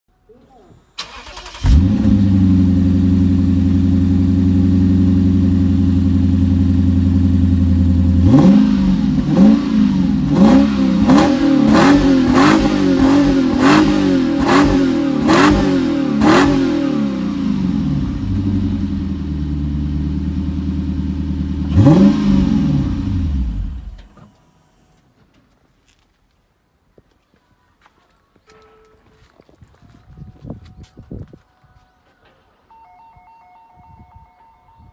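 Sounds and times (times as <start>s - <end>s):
car engine idling and revving: 1.0s - 24.5s.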